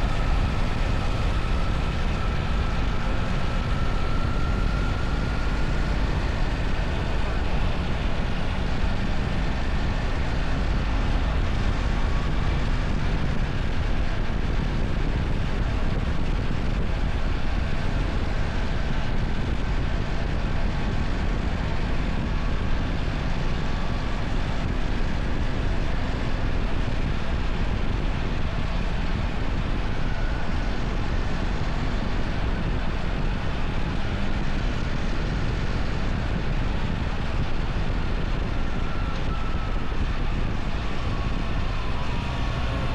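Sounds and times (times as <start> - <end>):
wind rushing over microphone: 0.0 - 42.9.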